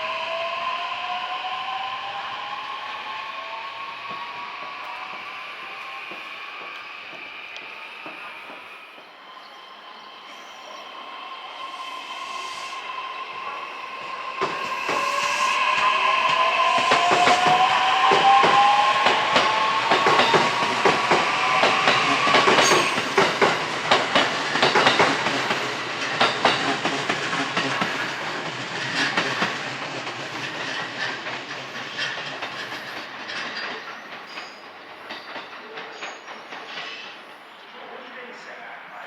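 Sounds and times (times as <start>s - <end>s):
electric train inverter whining: 0.0s - 33.2s
train wheels clacking over rail joints: 14.3s - 37.6s.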